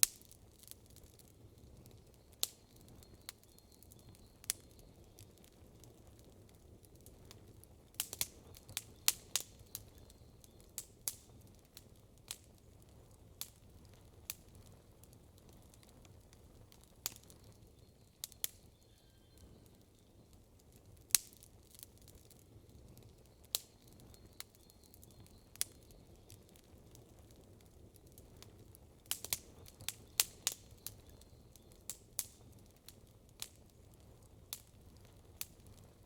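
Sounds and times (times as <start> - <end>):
campfire crackling: 0.0 - 36.0.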